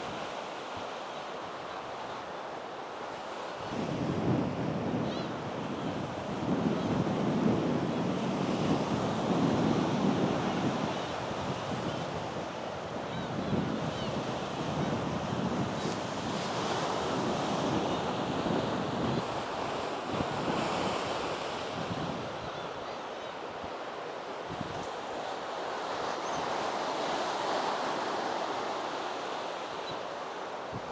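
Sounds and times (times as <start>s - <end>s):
strong wind gusting over microphone: 3.6s - 23.0s
sea surf breaking: 14.5s - 21.6s.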